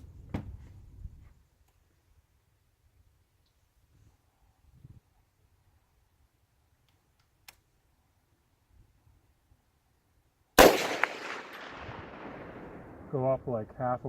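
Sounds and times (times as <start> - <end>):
rifle shot with echo: 10.6 - 13.2.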